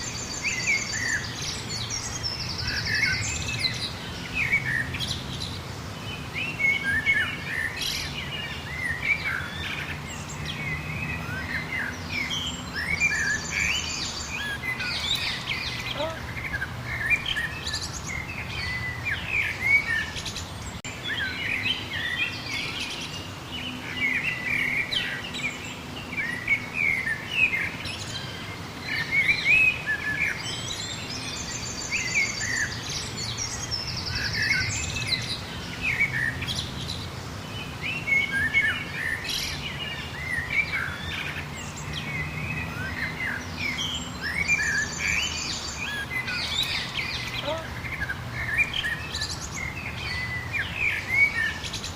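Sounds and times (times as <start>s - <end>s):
songbirds chirping and warbling: 0.0s - 51.9s.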